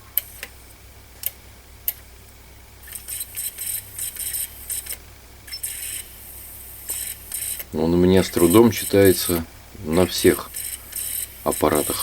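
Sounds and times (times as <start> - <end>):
high-pitched whirring bursts: 2.8 - 12.0.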